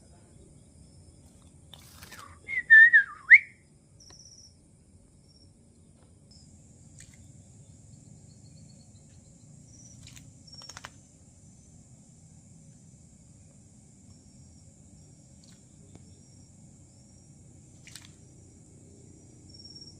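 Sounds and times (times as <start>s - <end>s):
wavering whistle: 2.2s - 3.6s
faint high chirps and clicks: 4.0s - 7.4s, 8.4s - 11.0s.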